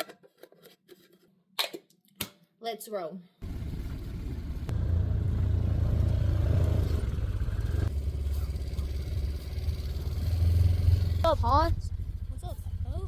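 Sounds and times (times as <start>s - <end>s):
utility vehicle engine running: 3.4s - 13.0s.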